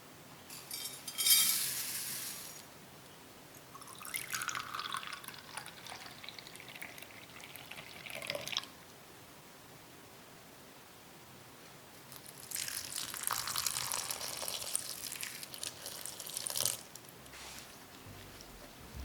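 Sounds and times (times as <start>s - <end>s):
liquid pouring and splashing: 3.8s - 8.6s, 12.4s - 16.9s.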